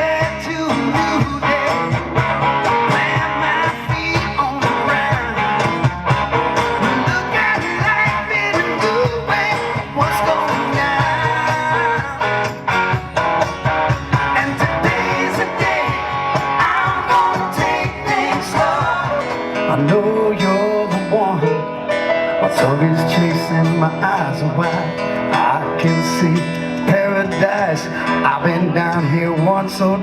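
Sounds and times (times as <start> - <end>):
strummed guitars: 0.0 - 30.0
drum beat: 0.2 - 19.5.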